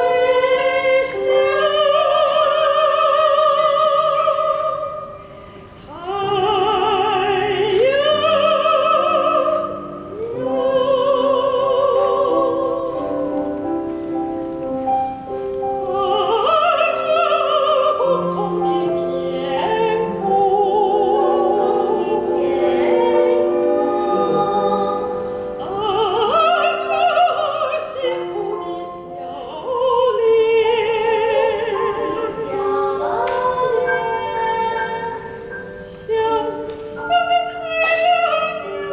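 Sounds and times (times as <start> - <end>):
piano accompaniment: 0.0 - 38.9
soprano singing with vibrato: 0.0 - 38.9
backing singers: 15.6 - 38.9.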